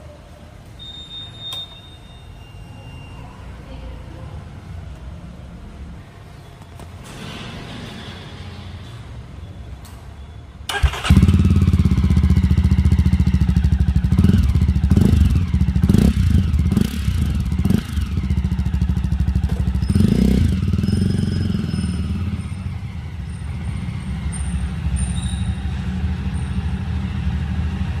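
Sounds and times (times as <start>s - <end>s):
motorcycle engine revving: 10.7s - 28.0s.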